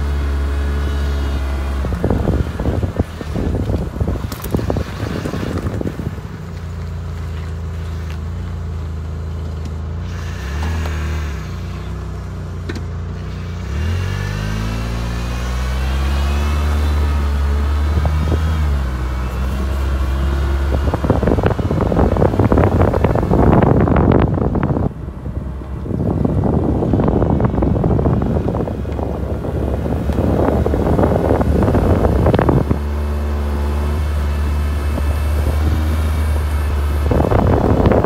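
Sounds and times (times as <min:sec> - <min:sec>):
car engine accelerating: 0:00.0 - 0:38.0
wind buffeting microphone: 0:01.4 - 0:06.8, 0:16.3 - 0:38.0.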